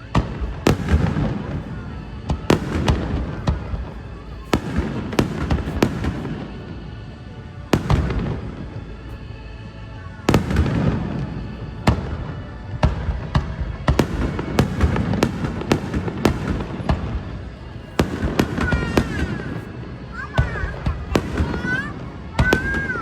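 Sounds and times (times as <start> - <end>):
fireworks crackling: 0.0 - 6.8, 7.7 - 8.7, 10.3 - 23.0
music playing: 0.0 - 23.0
fireworks bursting bangs: 0.1 - 6.8, 7.7 - 8.7, 10.3 - 23.0.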